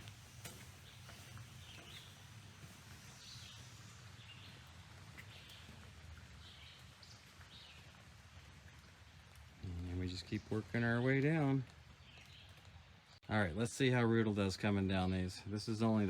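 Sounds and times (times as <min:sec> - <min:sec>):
bird chirping: 0:00.7 - 0:05.8.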